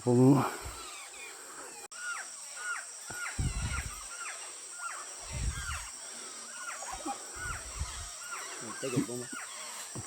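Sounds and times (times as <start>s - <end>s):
flock of birds calling: 0.0s - 10.0s
high insect drone: 0.0s - 10.0s
low thumps: 3.4s - 4.0s.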